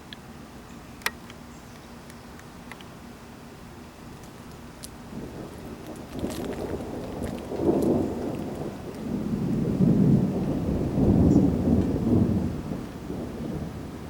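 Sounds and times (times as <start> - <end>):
thunder rumbling: 4.3 - 14.0.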